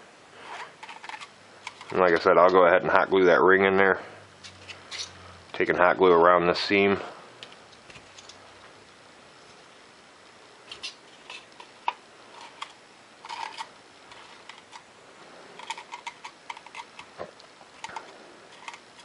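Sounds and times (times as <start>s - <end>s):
foam cup crinkling: 0.4s - 2.3s, 10.7s - 14.9s, 15.6s - 19.0s.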